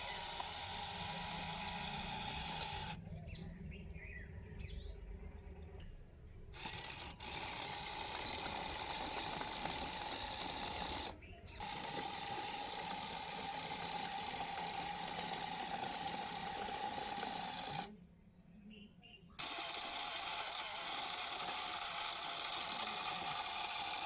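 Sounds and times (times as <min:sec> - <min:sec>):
small motor whirring: 0:00.0 - 0:03.0, 0:06.5 - 0:18.0, 0:19.4 - 0:24.0.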